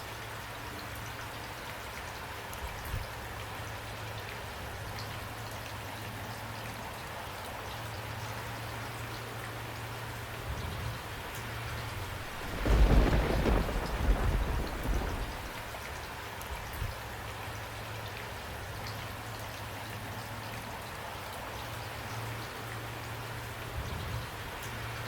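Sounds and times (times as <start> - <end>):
steady rain falling: 0.0 - 25.0
thunder rolling: 11.8 - 15.8.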